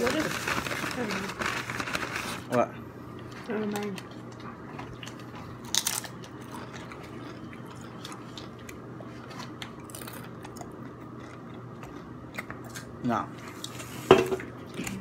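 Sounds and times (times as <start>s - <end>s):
person chewing and crunching food: 3.1s - 15.0s.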